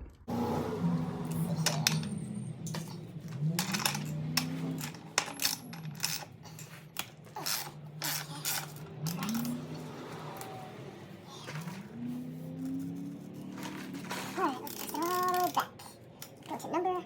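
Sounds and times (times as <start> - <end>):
metal chain links clinking: 1.3 - 10.5, 13.4 - 17.0.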